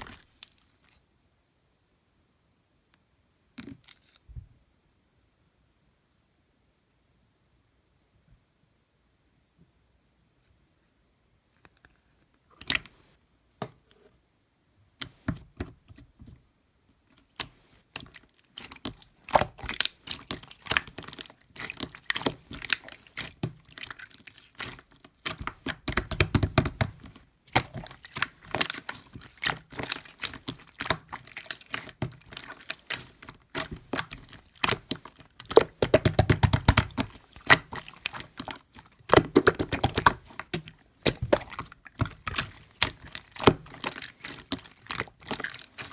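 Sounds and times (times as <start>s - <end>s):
squishy thuds: 0.0s - 0.7s, 17.2s - 45.9s
slime clicks and crackling pops: 18.6s - 45.9s.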